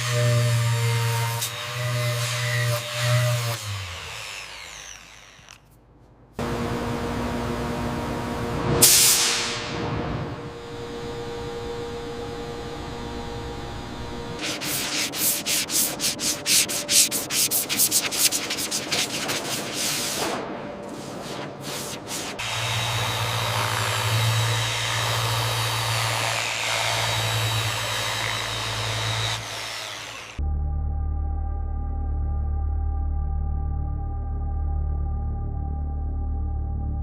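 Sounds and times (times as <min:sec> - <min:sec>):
electric sander humming: 0:00.0 - 0:05.7, 0:10.4 - 0:15.0, 0:22.4 - 0:30.4
hand sanding strokes on metal: 0:14.4 - 0:20.3, 0:20.9 - 0:28.4.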